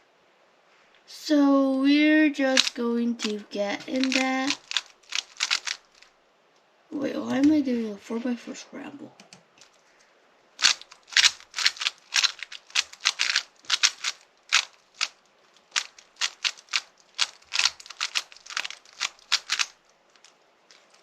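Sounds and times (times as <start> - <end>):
puzzle cube plastic clicks: 2.6 - 6.0, 10.6 - 21.0.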